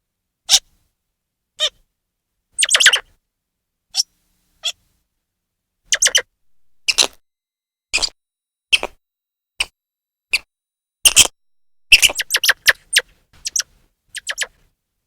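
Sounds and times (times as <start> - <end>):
squirrel chirping: 2.6 - 3.0, 5.9 - 7.2, 11.9 - 14.6.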